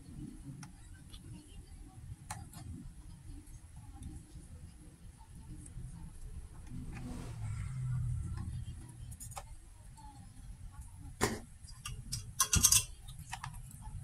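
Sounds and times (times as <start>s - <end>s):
low steady hum: 0.0s - 14.0s
tools clicking and tapping: 11.7s - 13.7s.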